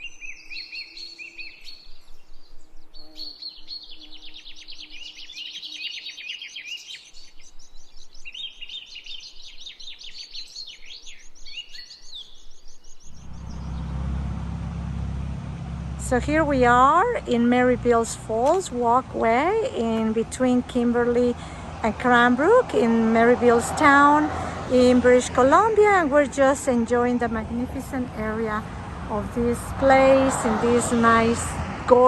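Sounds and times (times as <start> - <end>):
songbirds singing: 0.0 - 32.0
steady rushing noise: 13.2 - 17.9.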